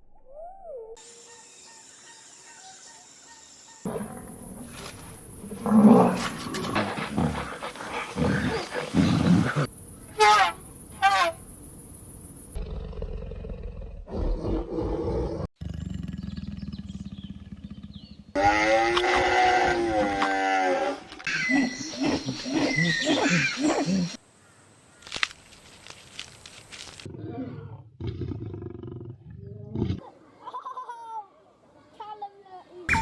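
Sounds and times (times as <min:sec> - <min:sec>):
big cat roaring and growling: 0:03.9 - 0:09.7, 0:12.6 - 0:24.2, 0:27.1 - 0:30.0
low animal rumbling: 0:03.9 - 0:11.5, 0:12.5 - 0:20.6
wavering pitched animal call: 0:10.1 - 0:11.5.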